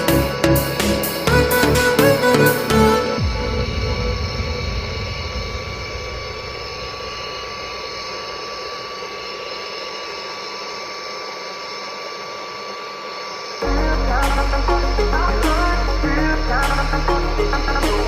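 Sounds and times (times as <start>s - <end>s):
music: 0.0s - 5.8s, 13.6s - 18.0s
mechanical running noise: 3.2s - 18.0s.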